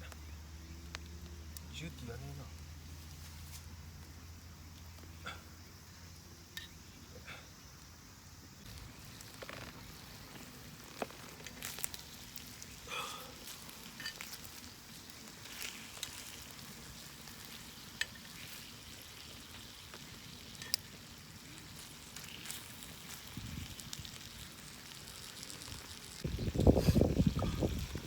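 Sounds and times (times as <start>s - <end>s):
meat sizzling: 8.6s - 28.0s
wood fire popping and crackling: 8.6s - 28.0s.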